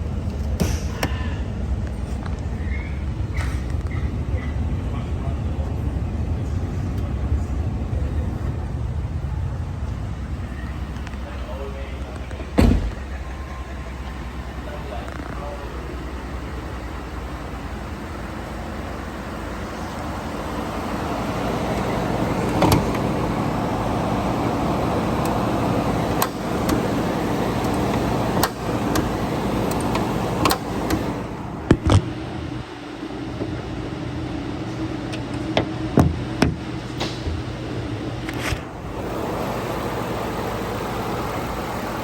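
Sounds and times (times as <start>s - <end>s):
truck engine running: 0.0s - 42.0s
sharp clicks and knocks: 26.1s - 32.1s.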